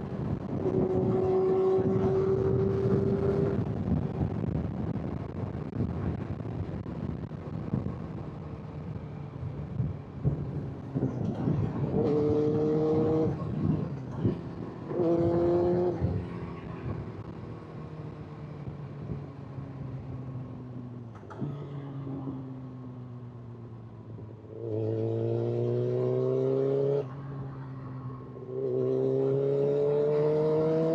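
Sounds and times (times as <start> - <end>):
motorcycle engine revving: 0.4 - 4.2, 10.2 - 17.4, 24.4 - 27.1, 28.4 - 30.9.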